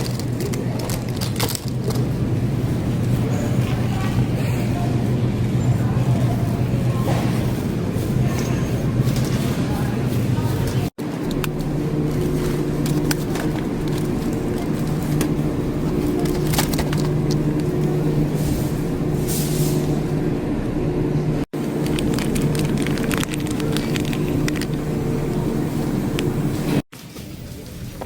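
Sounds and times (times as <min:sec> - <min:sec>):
car engine drone: 0:11.2 - 0:26.8.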